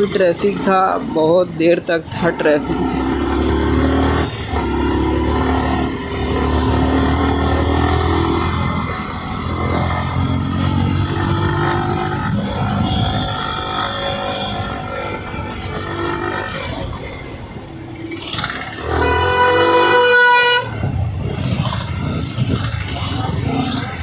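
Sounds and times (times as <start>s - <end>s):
motorcycle engine running: 2.3s - 17.2s, 20.9s - 24.0s.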